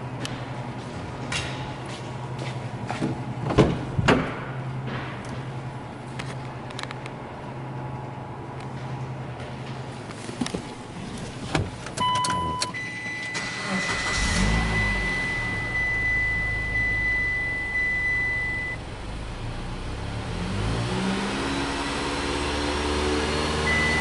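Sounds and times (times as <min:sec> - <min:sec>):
car engine starting and idling: 0:03.3 - 0:24.0
short beeps: 0:12.0 - 0:13.6, 0:14.4 - 0:18.8, 0:23.7 - 0:24.0.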